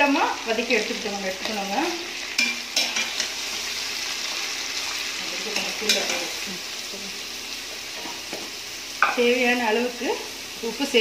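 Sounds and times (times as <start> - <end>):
onions sizzling in oil: 0.0 - 11.0
metal spoon scraping pan: 2.3 - 3.5.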